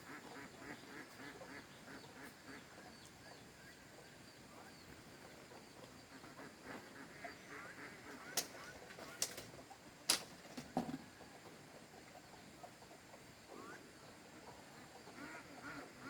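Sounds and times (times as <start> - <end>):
small birds chirping: 0.0 - 10.2
ducks quacking faintly: 0.0 - 10.4, 11.0 - 16.0.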